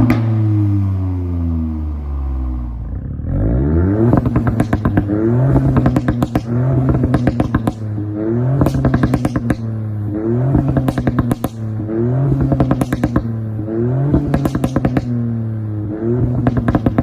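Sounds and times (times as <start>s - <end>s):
car engine revving: 0.0s - 17.0s
exhaust pops and crackles: 4.1s - 9.8s, 10.5s - 13.4s, 14.0s - 15.2s, 16.2s - 17.0s.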